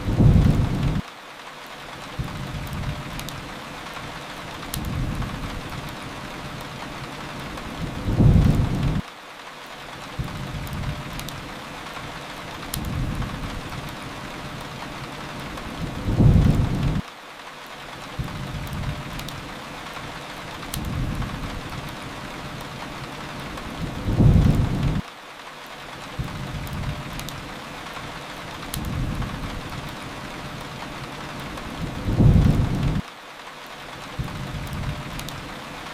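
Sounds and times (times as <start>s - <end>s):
low rumble of thunder: 0.0s - 1.0s, 7.7s - 9.0s, 15.6s - 17.0s, 23.6s - 25.0s, 28.7s - 29.8s, 31.6s - 33.0s
steady rain: 0.0s - 35.9s
wood fire crackling: 0.0s - 35.9s.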